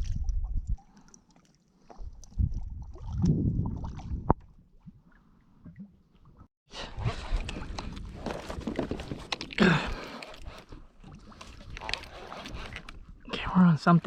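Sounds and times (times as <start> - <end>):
wind and water rushing on microphone: 0.0 - 1.0, 2.0 - 5.1
water sloshing against kayak hull: 7.1 - 13.3.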